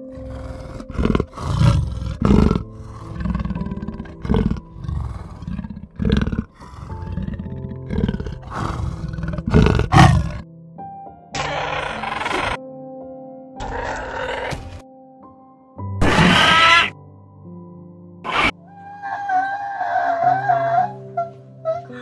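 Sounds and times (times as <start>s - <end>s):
large animal calling: 0.0s - 10.4s, 11.4s - 12.6s, 13.6s - 14.8s, 16.0s - 16.9s, 18.2s - 22.0s
gentle background music: 0.0s - 22.0s.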